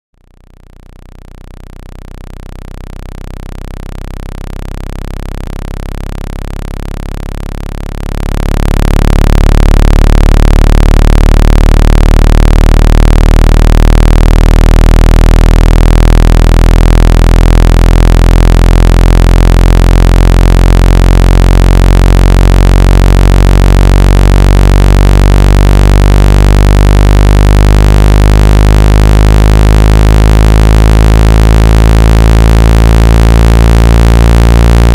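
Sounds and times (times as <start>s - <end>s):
low buzzing speaker tone: 0.2s - 34.9s.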